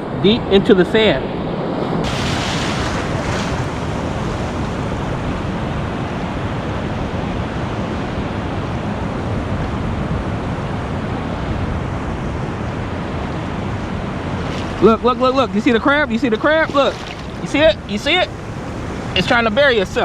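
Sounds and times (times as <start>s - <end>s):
wind rumbling on microphone: 1.3s - 20.0s
surf washing in: 2.0s - 9.0s, 13.0s - 20.0s.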